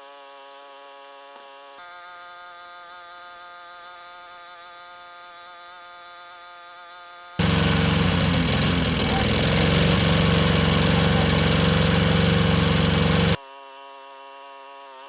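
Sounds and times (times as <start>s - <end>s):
lawnmower engine running: 7.4s - 13.4s
thin whining tone: 7.4s - 13.4s.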